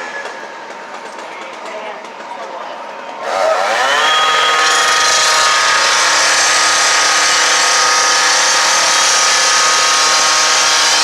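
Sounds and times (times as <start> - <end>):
power saw cutting metal: 0.0 - 1.6, 3.2 - 11.0.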